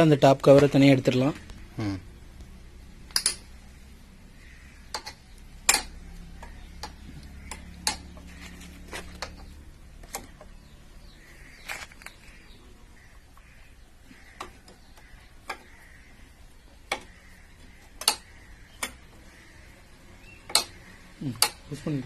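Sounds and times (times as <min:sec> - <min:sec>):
spanner clicking on bolts: 0:03.1 - 0:03.5, 0:04.9 - 0:08.3, 0:17.8 - 0:19.2, 0:20.4 - 0:20.8, 0:21.4 - 0:21.7.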